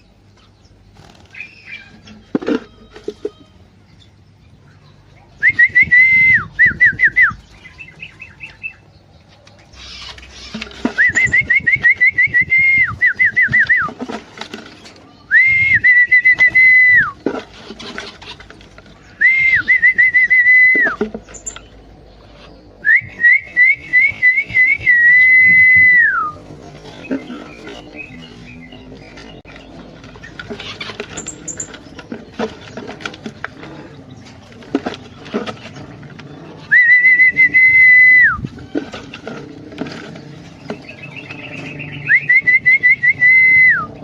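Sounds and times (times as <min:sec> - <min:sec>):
person whistling: 0:05.4 - 0:07.4, 0:11.0 - 0:13.9, 0:15.3 - 0:17.2, 0:19.2 - 0:21.0, 0:22.8 - 0:26.4, 0:36.7 - 0:38.4, 0:42.1 - 0:43.9.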